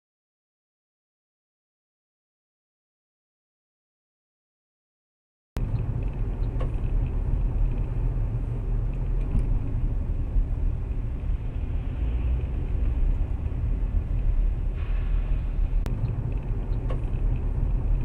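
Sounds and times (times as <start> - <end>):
car driving low rumble: 5.6 - 18.0.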